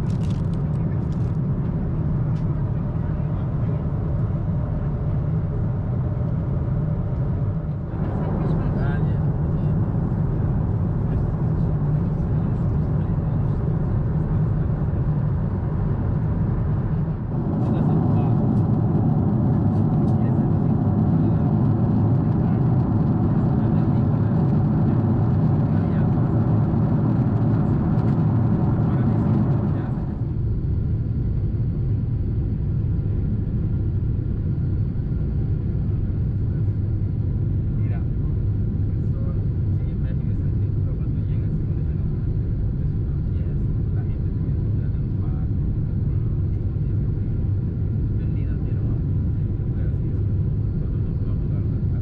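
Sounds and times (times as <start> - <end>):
airliner cabin engine and airflow rush: 0.0 - 52.0.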